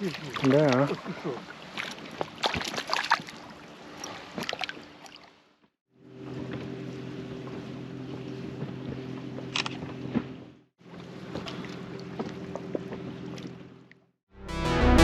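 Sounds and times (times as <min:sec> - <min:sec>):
water noise: 0:00.0 - 0:14.0
wind: 0:00.0 - 0:14.1
boat motor running: 0:05.9 - 0:15.0.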